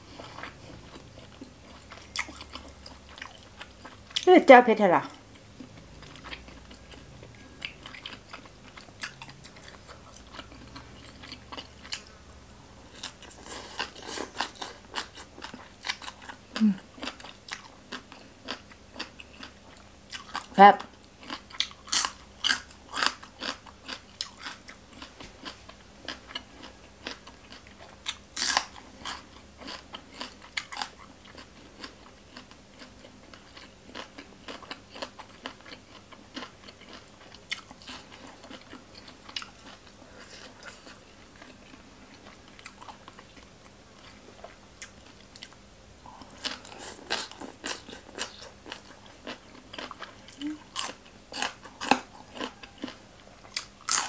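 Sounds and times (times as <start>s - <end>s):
wet chewing: 0.2s - 4.3s, 21.2s - 54.0s
crisp food crunches: 26.1s - 31.1s, 50.8s - 54.0s.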